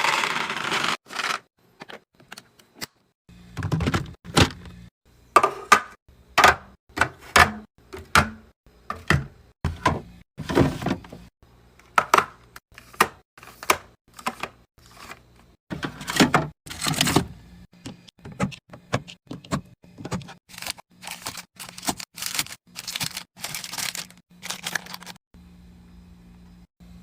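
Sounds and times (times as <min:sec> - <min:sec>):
plastic packaging rustling: 0:20.5 - 0:25.2.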